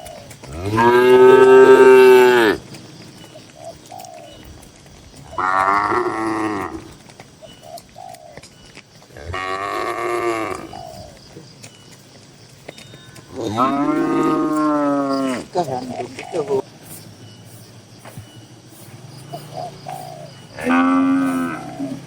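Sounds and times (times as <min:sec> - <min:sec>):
cattle mooing: 0:00.5 - 0:02.6, 0:05.3 - 0:07.0, 0:09.2 - 0:10.7, 0:13.3 - 0:15.5, 0:20.6 - 0:22.0.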